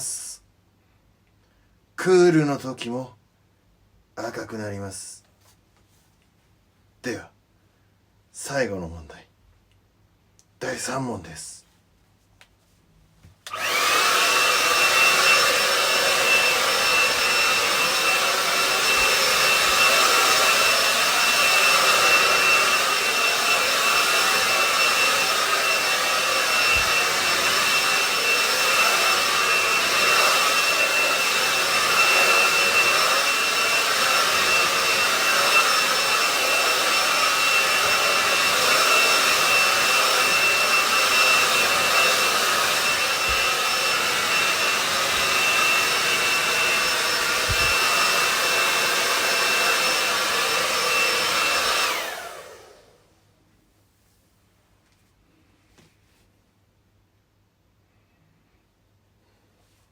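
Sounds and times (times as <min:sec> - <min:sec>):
hair dryer blowing with high whine: 0:13.4 - 0:53.1.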